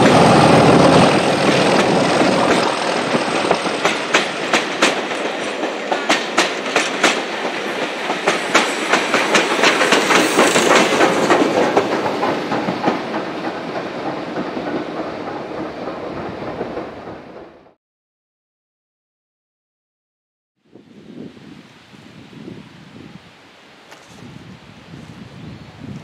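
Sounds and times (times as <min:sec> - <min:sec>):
train wheels clicking over rail joints: 0:00.0 - 0:17.5
train rumble: 0:00.0 - 0:17.8.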